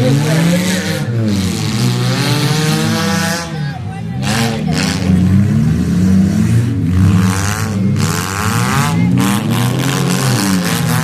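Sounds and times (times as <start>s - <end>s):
race car engines revving: 0.0s - 11.0s.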